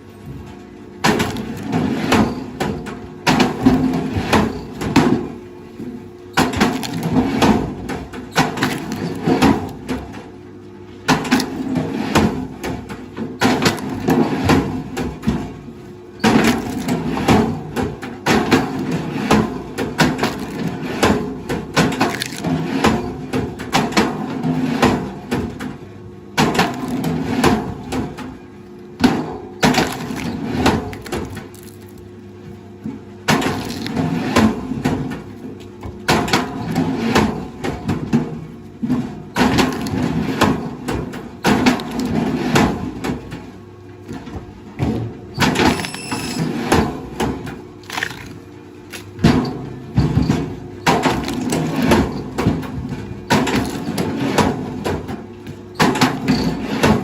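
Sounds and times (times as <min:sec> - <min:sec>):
low machine hum: 0:00.0 - 0:57.0
wood cracking and splintering: 0:06.4 - 0:07.4, 0:08.4 - 0:09.9, 0:16.3 - 0:17.1, 0:20.0 - 0:21.2, 0:21.8 - 0:22.7, 0:29.6 - 0:32.0, 0:33.3 - 0:34.2, 0:39.4 - 0:40.6, 0:47.8 - 0:49.4, 0:50.8 - 0:52.7, 0:53.3 - 0:54.2.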